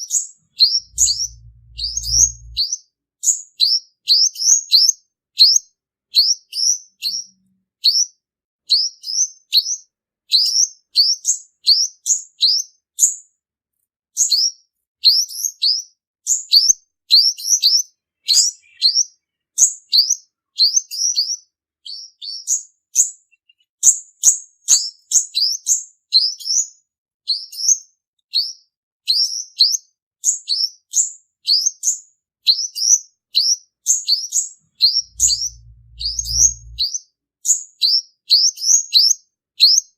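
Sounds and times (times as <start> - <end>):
sunbird singing high chirps: 0.1 - 2.7, 17.3 - 23.9, 32.7 - 37.0.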